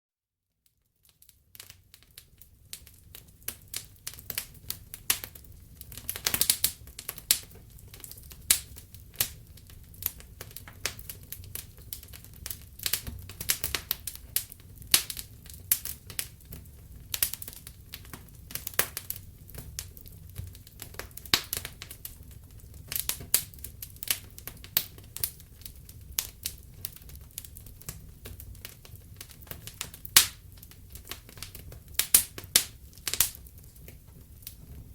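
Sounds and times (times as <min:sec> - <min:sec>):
wood fire crackling: 0:00.8 - 0:34.9.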